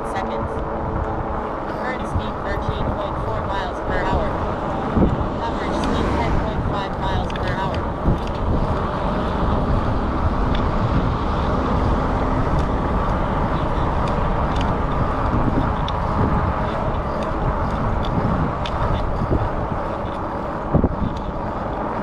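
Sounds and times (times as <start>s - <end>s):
tyre noise on path: 0.0s - 22.0s
wind buffeting microphone: 0.0s - 22.0s.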